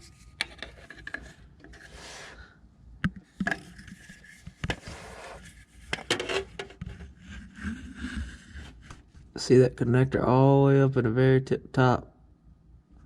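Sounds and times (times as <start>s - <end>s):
sharp clicks and knocks: 3.0s - 4.8s.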